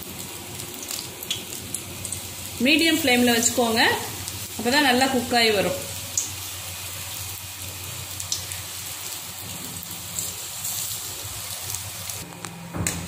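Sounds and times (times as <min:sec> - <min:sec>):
food deep-frying in hot oil: 0:00.0 - 0:13.0
small crackles of oil: 0:00.2 - 0:02.3, 0:08.1 - 0:09.2.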